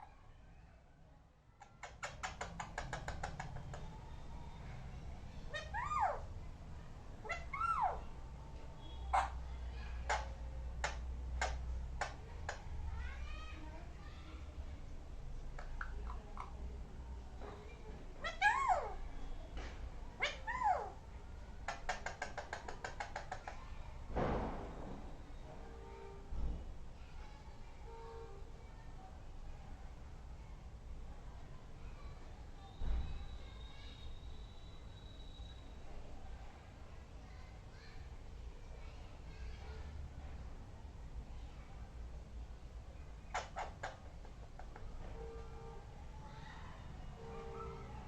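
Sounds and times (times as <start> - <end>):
parrot clicking: 1.6 - 3.9, 10.1 - 12.6, 15.6 - 16.5, 21.7 - 23.6
parrot calls: 5.5 - 6.3, 7.2 - 8.1, 9.1 - 9.4, 18.2 - 19.0, 20.2 - 21.0, 43.3 - 45.4.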